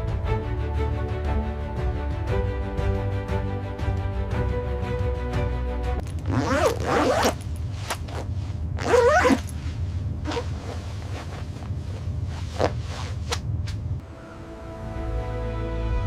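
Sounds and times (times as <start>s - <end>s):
music: 0.0s - 6.9s, 14.0s - 16.0s.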